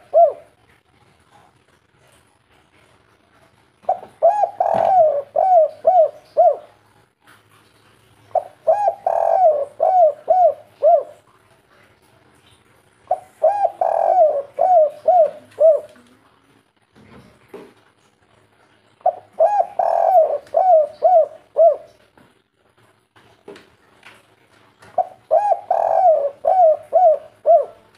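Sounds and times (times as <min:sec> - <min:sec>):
dove cooing: 0:00.0 - 0:00.6, 0:03.9 - 0:06.8, 0:08.3 - 0:11.3, 0:13.1 - 0:16.1, 0:19.0 - 0:22.0, 0:25.0 - 0:27.9.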